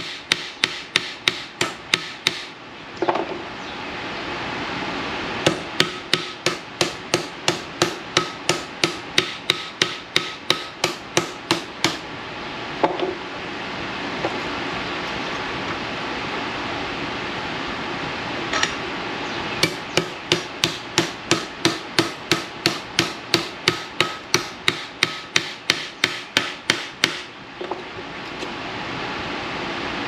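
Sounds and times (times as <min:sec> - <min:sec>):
hammer beating steel: 0:00.0 - 0:02.5, 0:05.4 - 0:12.0, 0:19.6 - 0:27.3.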